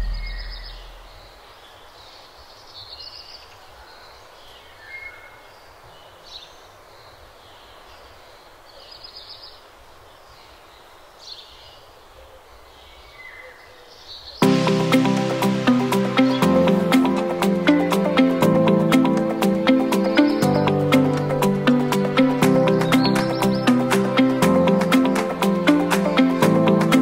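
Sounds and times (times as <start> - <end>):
birdsong trills and chirps: 0.0 - 27.0
steady outdoor background hiss: 0.0 - 27.0
music: 14.4 - 27.0.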